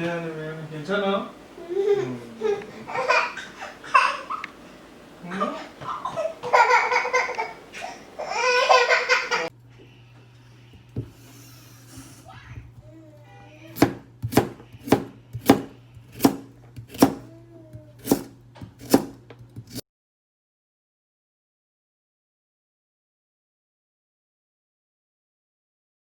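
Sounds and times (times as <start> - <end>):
steady low hum: 0.0 - 19.7
baby laughing and babbling: 1.5 - 9.5.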